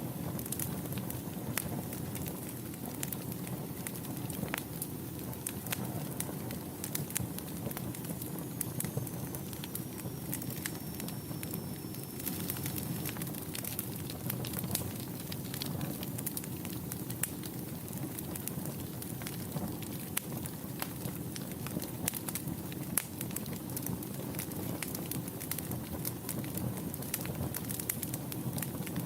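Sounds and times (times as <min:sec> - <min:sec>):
fire rumbling with crackles: 0:00.0 - 0:29.0
faint high whistle: 0:08.2 - 0:13.3.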